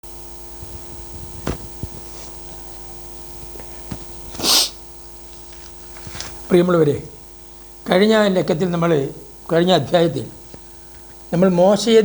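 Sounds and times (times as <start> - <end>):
electrical mains hum: 0.0 - 12.0
short hiss: 4.3 - 4.8.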